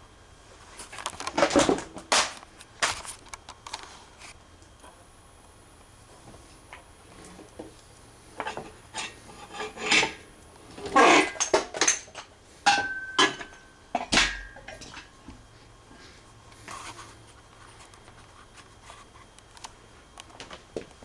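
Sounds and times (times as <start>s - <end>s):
metal tools clanking: 8.4s - 15.1s.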